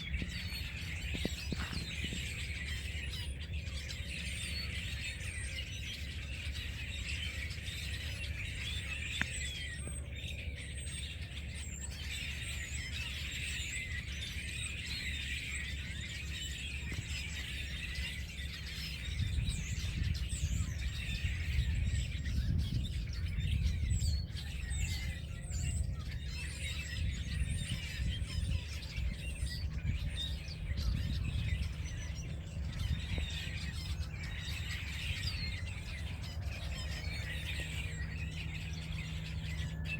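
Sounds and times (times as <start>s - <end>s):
flock of birds chirping: 0.0s - 39.9s.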